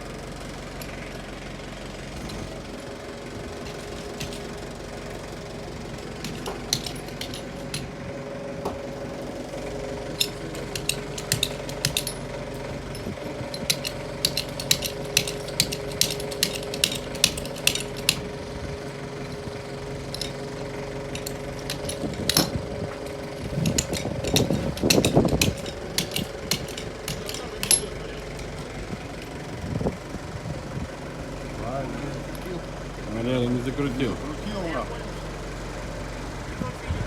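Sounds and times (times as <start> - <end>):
diesel engine running: 0.0 - 37.0
sharp metallic knocks: 6.2 - 7.9, 10.2 - 18.3, 21.1 - 28.1.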